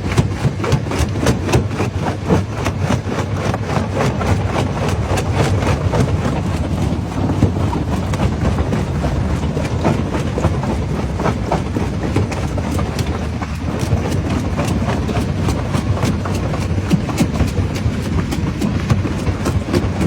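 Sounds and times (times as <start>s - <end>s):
diesel engine rumbling: 4.0s - 20.0s.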